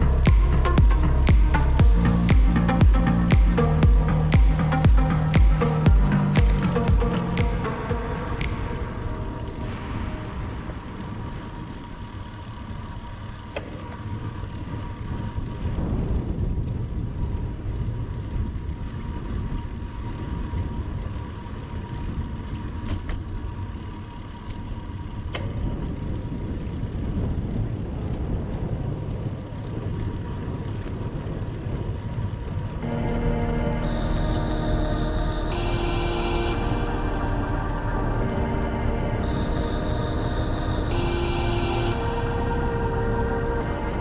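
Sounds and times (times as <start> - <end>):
thin steady whine: 0.0 - 15.6, 32.2 - 44.0
wind buffeting microphone: 14.0 - 22.8.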